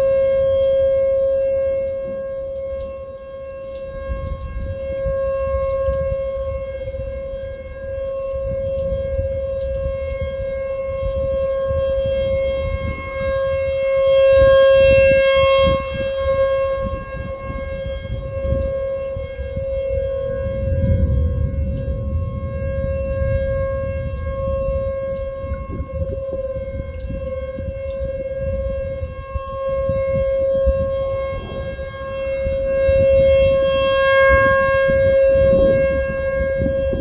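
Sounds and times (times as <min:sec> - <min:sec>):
warning siren wailing: 0:00.0 - 0:37.0
low rumbling noise: 0:15.8 - 0:37.0.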